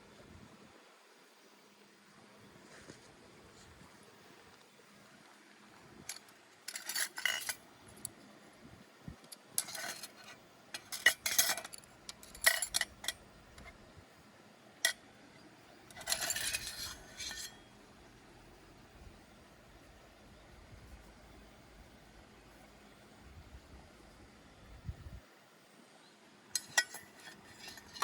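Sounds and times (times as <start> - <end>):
cutlery and dishes clinking: 15.9 - 17.7, 26.6 - 28.0.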